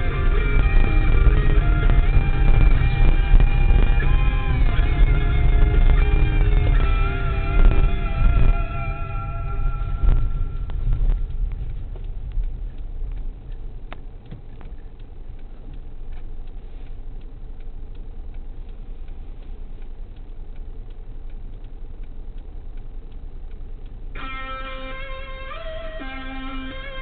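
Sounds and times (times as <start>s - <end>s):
guitar music: 0.0s - 11.4s, 24.2s - 27.0s
car engine idling: 0.0s - 27.0s
faint regular ticking: 0.0s - 27.0s.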